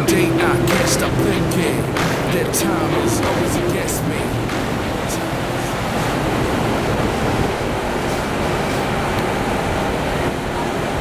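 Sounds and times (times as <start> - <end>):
wind buffeting microphone: 1.7 - 11.0.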